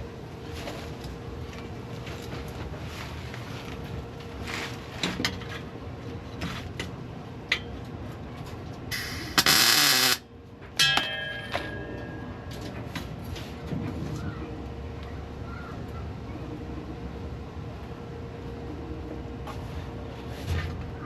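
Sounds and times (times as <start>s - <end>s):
loud hiss: 8.9s - 10.2s
metallic ring: 10.8s - 12.6s.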